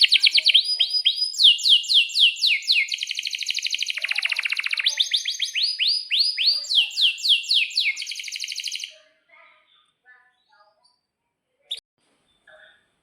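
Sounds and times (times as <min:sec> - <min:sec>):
canary singing: 0:00.0 - 0:09.1.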